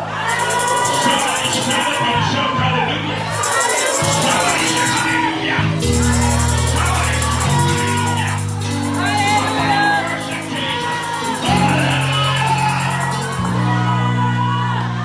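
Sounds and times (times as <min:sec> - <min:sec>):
voices singing and shouting praise: 0:00.0 - 0:15.0
instrumental music of held chords: 0:03.1 - 0:15.0.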